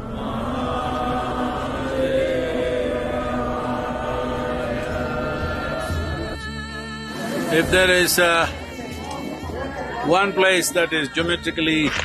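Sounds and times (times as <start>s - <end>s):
steady drone: 0.0s - 9.2s
voices chanting a long note: 0.0s - 11.9s.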